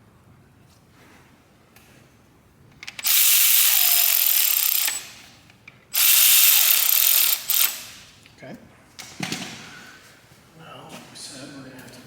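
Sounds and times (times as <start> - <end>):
air tool hissing: 3.0 - 5.2, 6.0 - 8.1.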